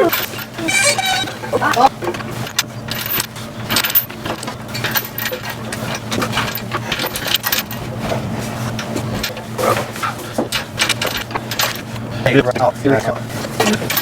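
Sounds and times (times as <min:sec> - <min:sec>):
metal tools clinking and rattling: 0:00.0 - 0:07.8, 0:10.5 - 0:11.9, 0:13.6 - 0:14.0.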